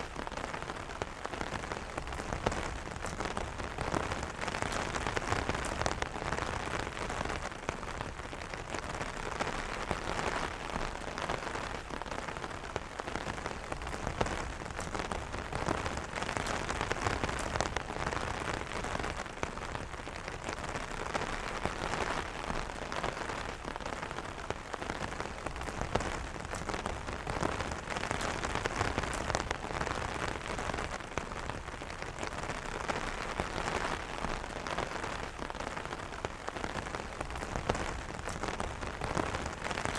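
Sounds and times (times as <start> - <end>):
rain pattering on an umbrella: 0.0 - 39.9.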